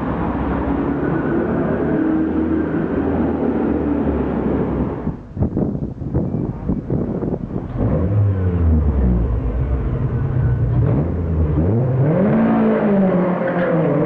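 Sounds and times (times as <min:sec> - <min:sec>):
sports car engine revving: 0:07.7 - 0:14.0.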